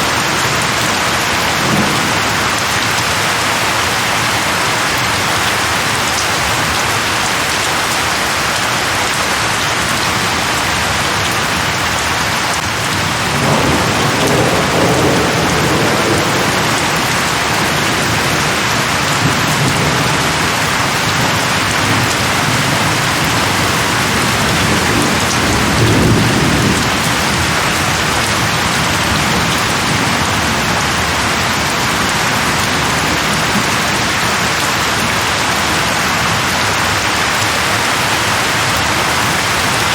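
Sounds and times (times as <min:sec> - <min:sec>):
heavy rain falling: 0:00.0 - 0:39.9
thunder rumbling: 0:00.9 - 0:05.5, 0:12.8 - 0:36.5.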